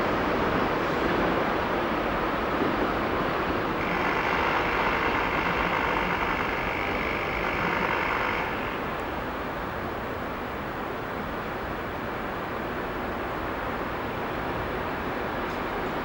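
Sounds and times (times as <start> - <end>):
train rolling over points: 2.8 - 9.3.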